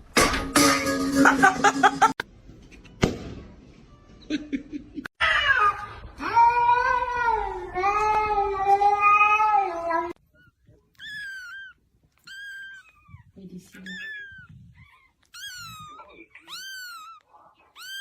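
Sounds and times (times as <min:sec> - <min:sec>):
cat yowling: 0:10.2 - 0:18.0.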